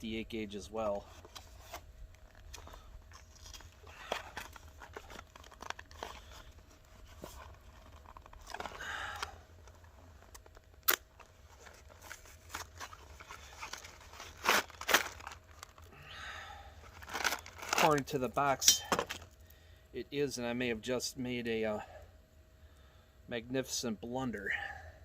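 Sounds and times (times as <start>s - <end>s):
cardboard packaging tearing and crinkling: 1.1s - 15.9s, 16.8s - 18.2s.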